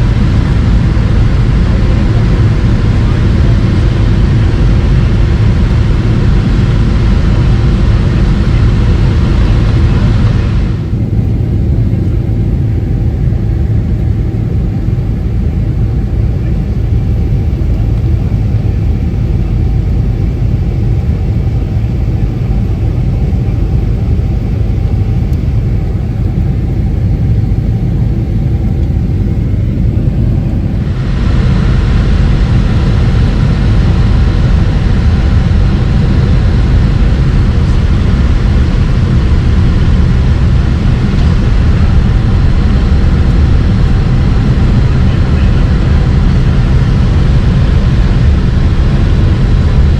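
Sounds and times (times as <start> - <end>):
jet airliner engine rumble: 0.0 - 49.9.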